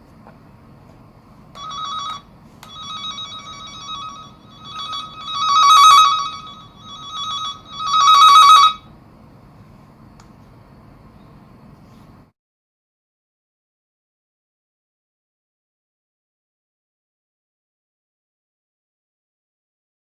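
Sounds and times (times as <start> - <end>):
high-pitched electronic buzzing tone: 1.6 - 8.9.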